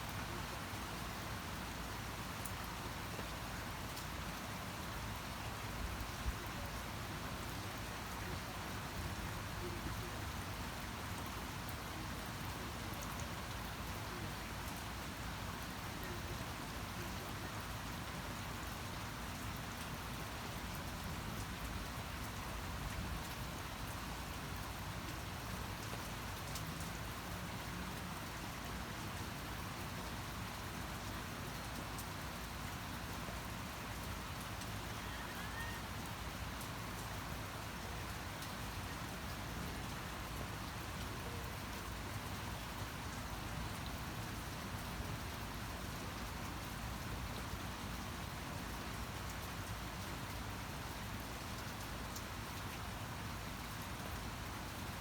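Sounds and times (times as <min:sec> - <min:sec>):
steady rain falling: 0:00.0 - 0:55.0
raindrop ticks: 0:25.8 - 0:27.0.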